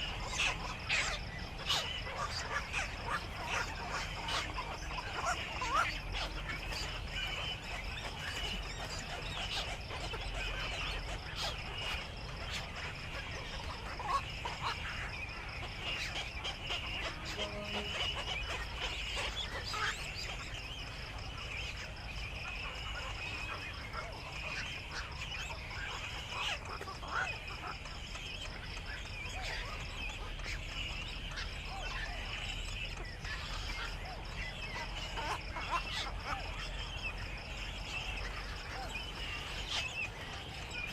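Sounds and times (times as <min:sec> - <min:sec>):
birds chirping chorus: 0:00.0 - 0:40.9
pulsing high-pitched chirring: 0:17.0 - 0:18.5.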